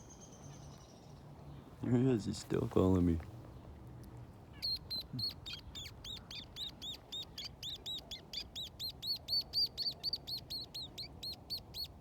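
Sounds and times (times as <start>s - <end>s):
small bird chirping rapidly: 4.6s - 12.0s.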